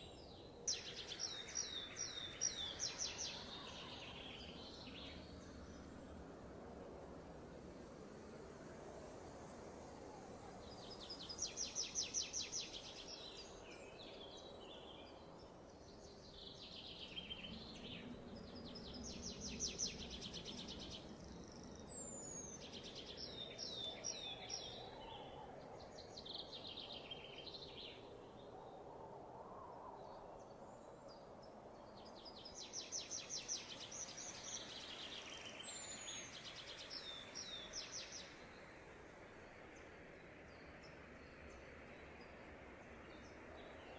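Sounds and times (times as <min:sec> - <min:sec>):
birds singing trills: 0:00.0 - 0:05.8, 0:10.7 - 0:28.1, 0:31.9 - 0:38.7
faint background hiss: 0:00.0 - 0:43.9.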